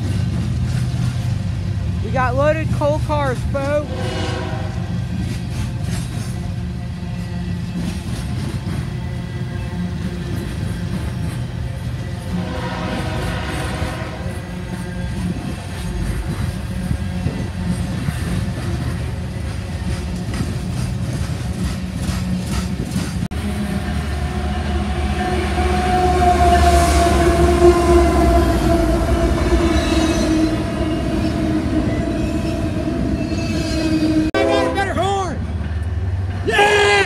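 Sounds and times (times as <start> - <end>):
diesel locomotive passing: 0.0 - 37.0
wheels clicking over rail joints: 4.8 - 9.2, 15.0 - 23.3.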